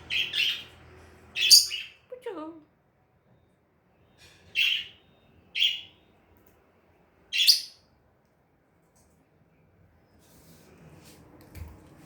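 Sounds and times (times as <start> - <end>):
bird high-pitched chirps: 0.0 - 0.7, 1.4 - 2.0, 4.5 - 6.0, 7.3 - 7.8.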